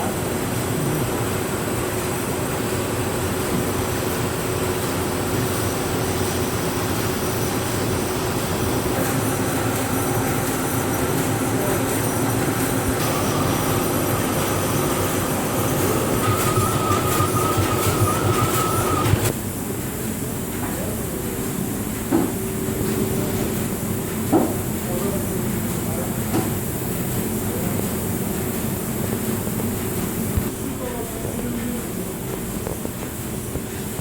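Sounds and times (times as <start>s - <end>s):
machinery running with hum: 0.0s - 34.0s
high-pitched machine whine: 6.5s - 19.4s.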